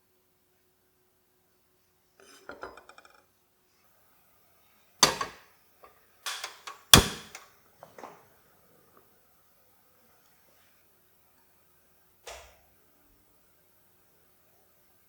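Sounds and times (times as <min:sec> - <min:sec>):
sharp knocks of hard objects: 0:05.0 - 0:05.4, 0:06.3 - 0:07.4.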